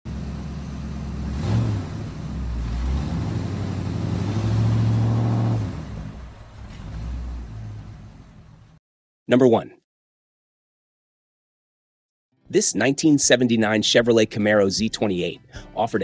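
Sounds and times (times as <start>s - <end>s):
car engine idling and revving: 0.0s - 8.8s.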